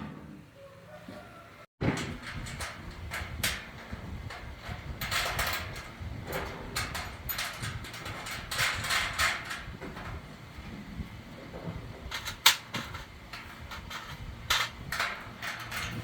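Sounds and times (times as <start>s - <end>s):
objects scraping and clicking: 11.5s - 16.0s.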